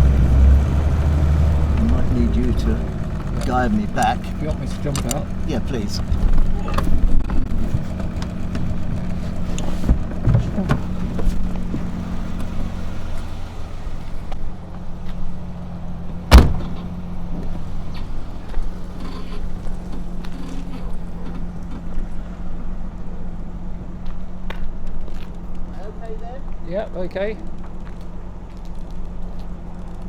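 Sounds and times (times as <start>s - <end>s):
car engine idling: 0.0s - 30.0s
car door slamming: 2.9s - 13.8s, 16.1s - 18.3s.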